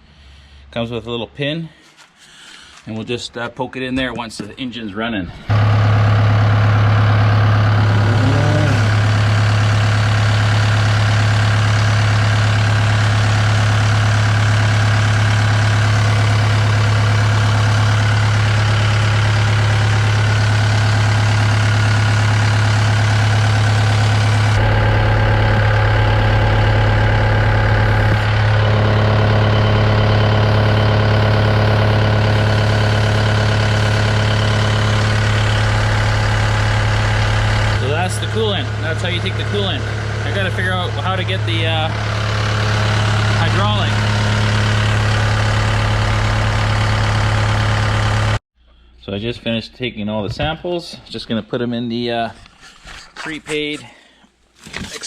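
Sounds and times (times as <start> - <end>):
diesel engine idling: 5.5 - 48.4.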